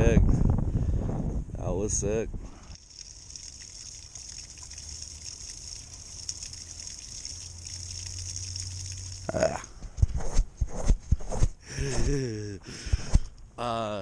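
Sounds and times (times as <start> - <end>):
water rushing: 2.8 - 9.6.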